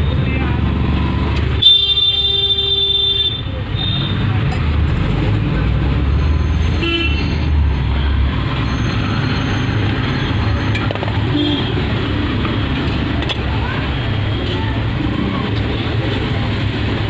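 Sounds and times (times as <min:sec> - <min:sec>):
road traffic rumble: 0:00.0 - 0:17.0
vehicle horn toot: 0:01.6 - 0:04.2.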